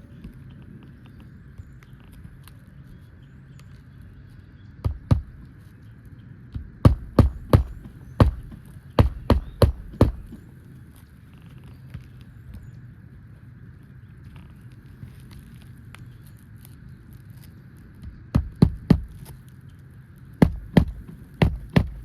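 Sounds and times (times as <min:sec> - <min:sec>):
hammer striking a pry tool: 0:06.8 - 0:10.3.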